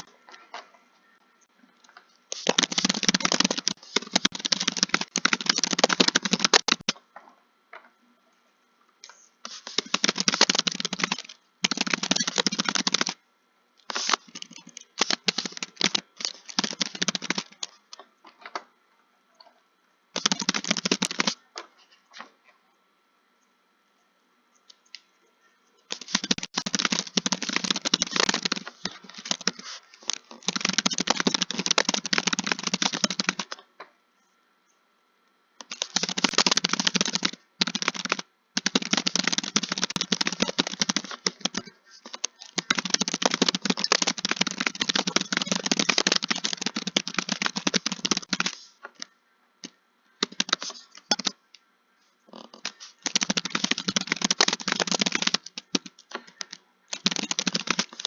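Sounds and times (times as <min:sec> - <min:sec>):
typing on keyboard: 0:02.3 - 0:06.9, 0:09.5 - 0:13.2, 0:13.9 - 0:17.8, 0:20.2 - 0:21.4, 0:25.9 - 0:33.6, 0:35.6 - 0:48.6, 0:50.2 - 0:51.4, 0:52.6 - 0:58.0.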